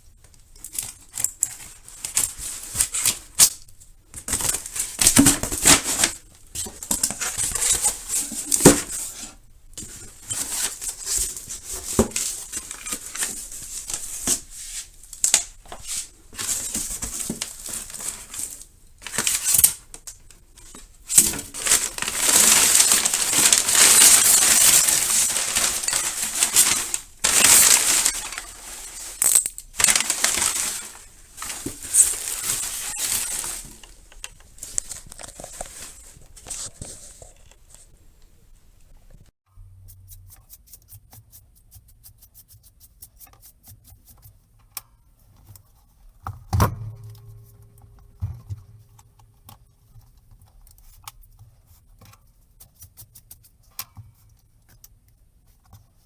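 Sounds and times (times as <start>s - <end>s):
rustling: 0.4s - 39.3s
scraping of plastic and metal: 4.2s - 37.8s.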